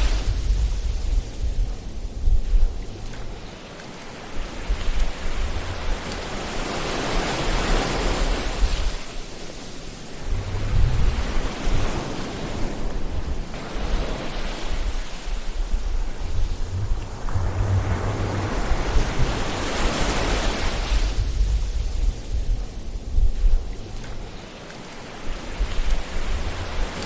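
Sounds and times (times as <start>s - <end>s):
ocean waves breaking on shore: 0.0s - 27.0s
low rumble: 10.2s - 11.8s, 14.9s - 24.3s.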